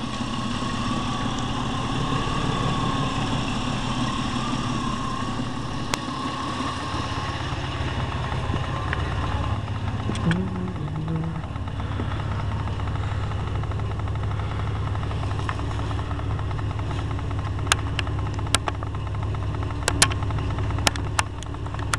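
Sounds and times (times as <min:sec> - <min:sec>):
car engine idling: 0:00.0 - 0:21.9
sharp clicks: 0:17.6 - 0:18.9, 0:19.8 - 0:21.9.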